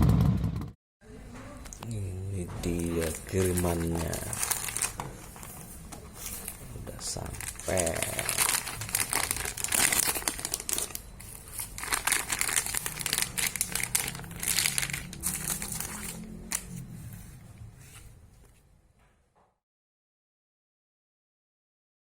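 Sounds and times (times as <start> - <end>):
plastic packaging crinkling: 2.7 - 16.9.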